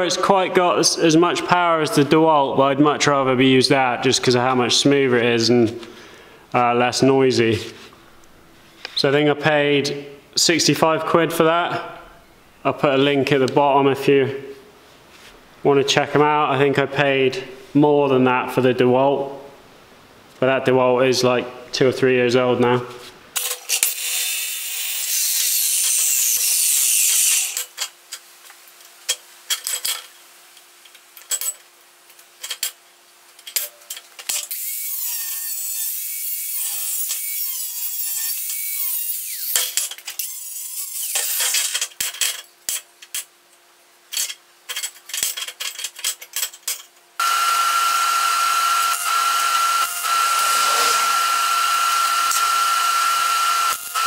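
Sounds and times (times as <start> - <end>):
angle grinder cutting steel: 23.4 - 27.7, 34.5 - 41.7, 47.2 - 54.0
power tool whining: 47.2 - 54.0.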